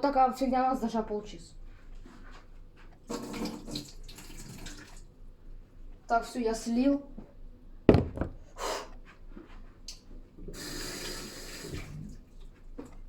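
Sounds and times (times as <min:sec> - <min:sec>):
water running from a tap: 0:03.1 - 0:05.1, 0:10.5 - 0:12.6.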